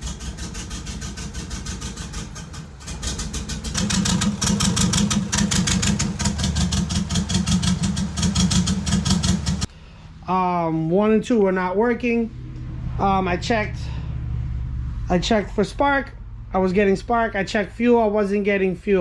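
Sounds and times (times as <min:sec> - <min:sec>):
engine idling roughly: 0:00.0 - 0:09.7.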